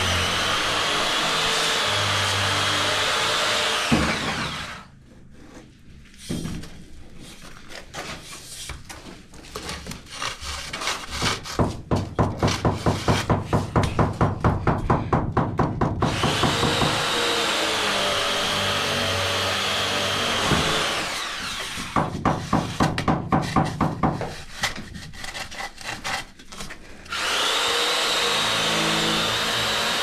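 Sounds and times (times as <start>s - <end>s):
power tool running: 0.0s - 4.9s, 16.0s - 22.0s, 27.1s - 30.0s
rhythmic sawing on wood: 0.0s - 4.9s, 16.0s - 26.3s, 27.1s - 30.0s.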